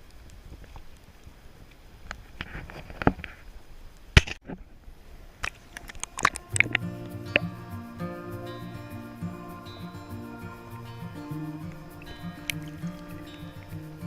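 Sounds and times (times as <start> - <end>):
music: 6.3 - 14.0.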